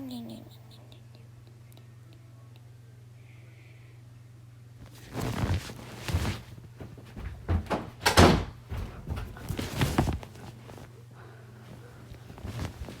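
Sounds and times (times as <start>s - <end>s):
steady low hum: 0.0s - 13.0s
knocks and thuds: 6.8s - 10.3s.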